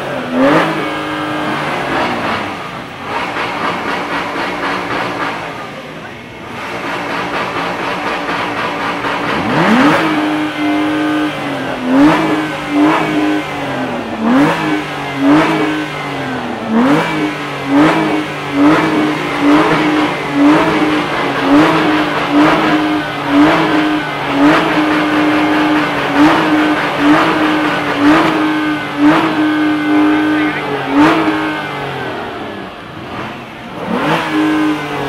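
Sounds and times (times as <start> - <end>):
car engine revving: 0.0 - 35.0.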